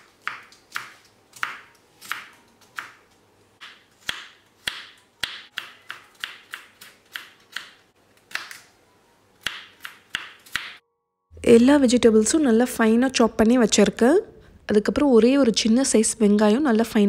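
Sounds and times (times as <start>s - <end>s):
knife chopping on cutting board: 0.0s - 3.0s, 3.6s - 8.6s, 9.4s - 10.8s.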